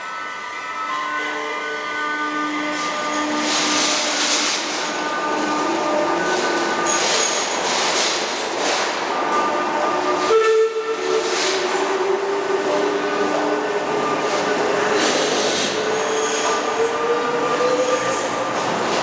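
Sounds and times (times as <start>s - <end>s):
tram running: 0.0s - 19.0s.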